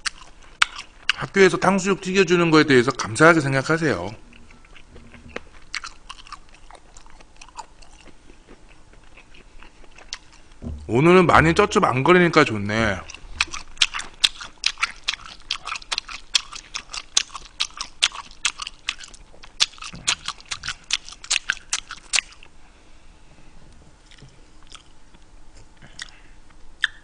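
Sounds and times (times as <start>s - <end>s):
man chewing food: 0.0s - 1.3s, 2.9s - 10.6s, 13.0s - 22.6s, 24.0s - 27.0s
wet smacking mouth clicks: 26.8s - 27.0s.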